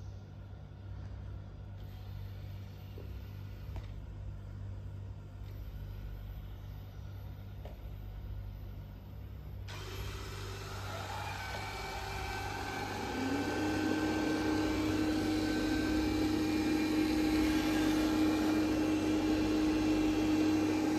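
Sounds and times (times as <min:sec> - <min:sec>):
robot vacuum humming: 0:09.7 - 0:20.9
suction fan whine: 0:09.7 - 0:20.9.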